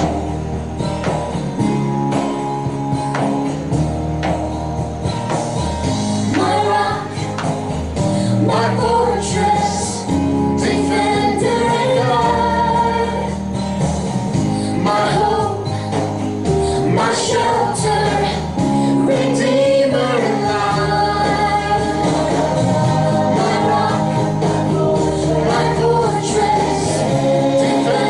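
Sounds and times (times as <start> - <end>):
instrumental accompaniment: 0.0 - 28.0
voices singing slow melody: 5.8 - 28.0.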